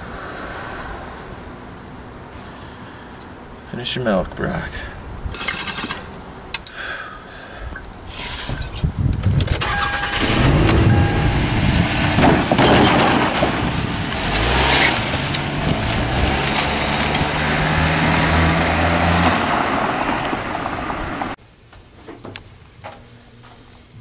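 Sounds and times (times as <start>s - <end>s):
car engine starting and revving: 9.6s - 21.4s.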